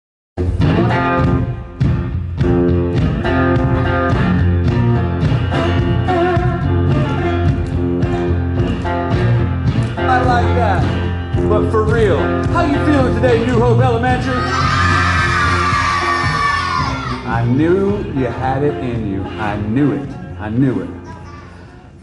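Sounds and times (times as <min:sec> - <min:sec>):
blues band playing: 0:00.4 - 0:20.8.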